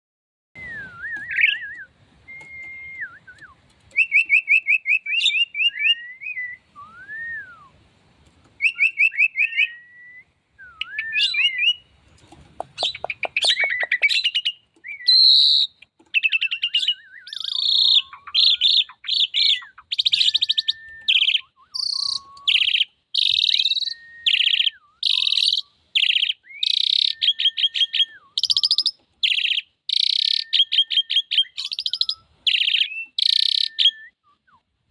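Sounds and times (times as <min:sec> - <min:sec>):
starling singing: 0:10.9 - 0:34.0.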